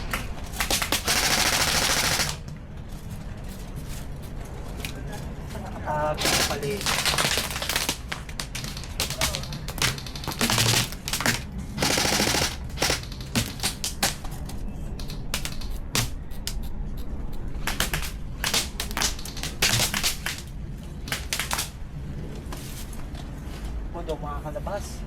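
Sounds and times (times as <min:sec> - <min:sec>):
airsoft guns firing: 0:00.0 - 0:02.5, 0:06.2 - 0:16.7, 0:17.5 - 0:21.8.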